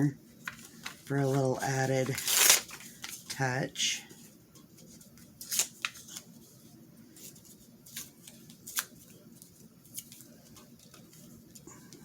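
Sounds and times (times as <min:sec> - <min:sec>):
paper tearing and rustling: 0:00.4 - 0:03.4, 0:05.4 - 0:06.3, 0:07.2 - 0:11.2.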